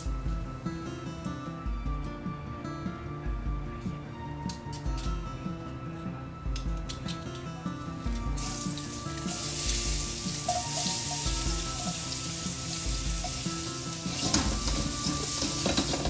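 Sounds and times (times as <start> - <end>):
background music: 0.0 - 16.0
garlic sizzling in hot oil: 8.4 - 16.0.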